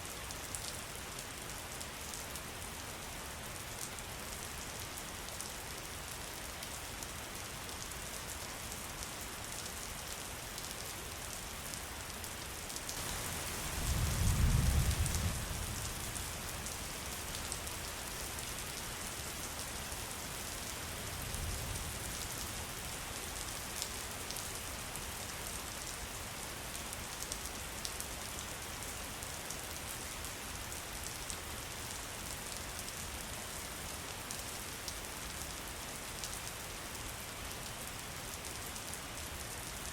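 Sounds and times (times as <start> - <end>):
rain with drop ticks: 0.1 - 39.9
thunder rumble: 13.8 - 15.6.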